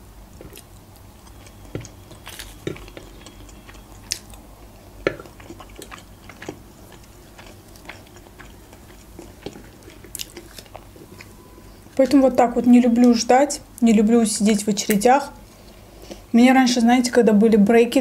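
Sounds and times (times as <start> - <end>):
wet chewing sounds: 0.3 - 12.4.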